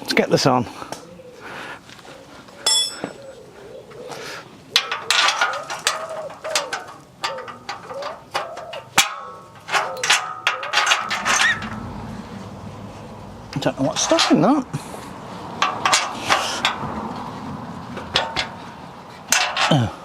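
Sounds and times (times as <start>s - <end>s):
sharp metallic clang: 2.6s - 3.2s
metal clanks and knocks: 4.7s - 12.3s, 13.5s - 14.7s, 15.5s - 20.0s.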